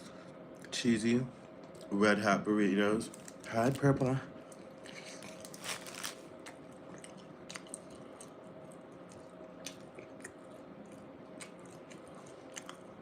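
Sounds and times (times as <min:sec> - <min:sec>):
faint steady hum: 0:00.0 - 0:13.0
chewing mouth sounds: 0:06.4 - 0:13.0.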